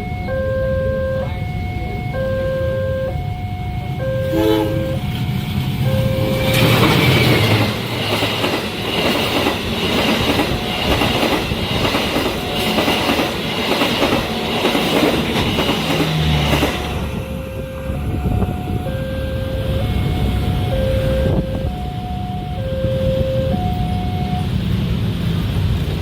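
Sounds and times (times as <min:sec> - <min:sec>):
level crossing alarm two-note tones: 0:00.0 - 0:06.9, 0:16.9 - 0:24.6
train wheels rushing on rails: 0:04.7 - 0:26.0
clickety-clack over rail joints: 0:05.1 - 0:18.8.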